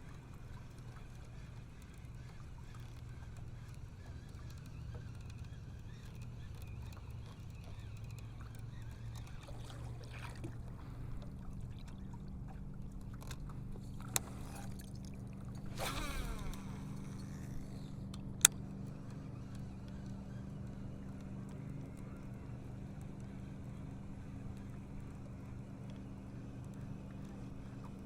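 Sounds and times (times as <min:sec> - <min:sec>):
boat motor humming: 0:00.0 - 0:28.0
brief whir: 0:15.5 - 0:20.4
sharp clicks: 0:15.7 - 0:18.7.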